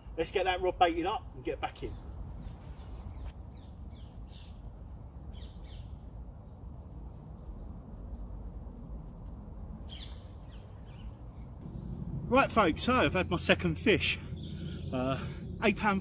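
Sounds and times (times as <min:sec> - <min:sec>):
low rumble: 0:11.2 - 0:16.0.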